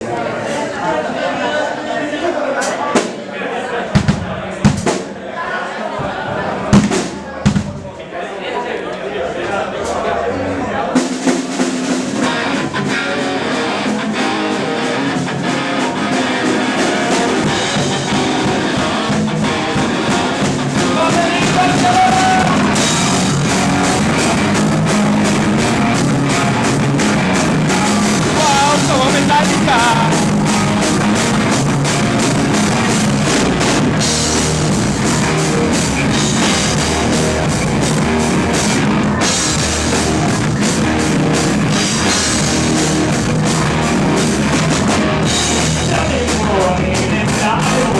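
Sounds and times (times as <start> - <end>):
drum kit: 2.6 - 5.3, 6.0 - 8.0, 10.8 - 47.9
rock band playing live: 4.0 - 5.2, 6.7 - 7.9, 11.0 - 47.9
electric guitar: 12.0 - 47.9.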